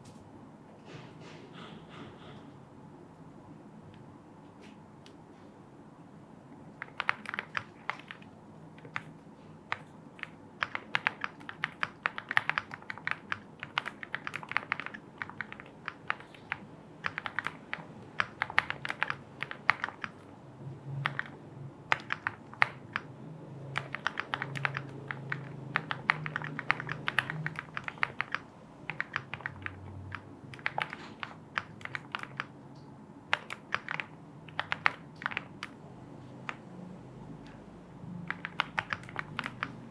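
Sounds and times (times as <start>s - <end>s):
mechanical keyboard typing: 6.7s - 20.4s, 21.0s - 32.6s, 33.3s - 35.8s, 36.4s - 36.7s, 38.2s - 39.9s.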